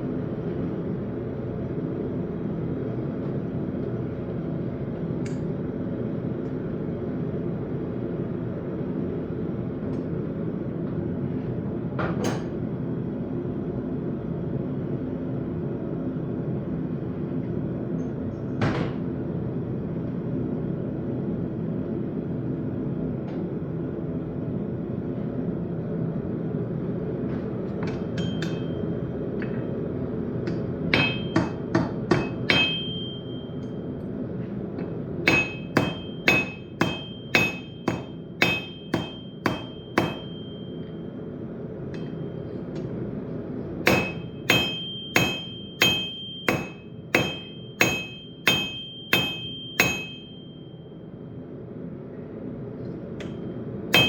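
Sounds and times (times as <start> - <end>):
hammer striking steel on anvil: 27.9 - 29.8, 30.4 - 33.8, 35.2 - 41.0, 41.9 - 42.9, 43.8 - 50.7, 53.2 - 54.0.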